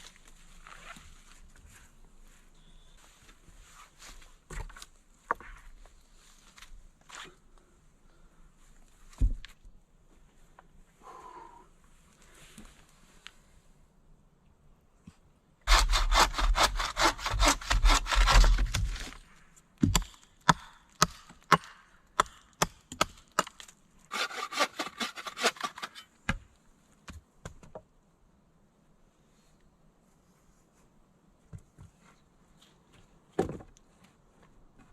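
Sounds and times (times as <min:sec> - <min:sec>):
handsaw cutting wood: 0:15.7 - 0:19.2, 0:24.1 - 0:26.0.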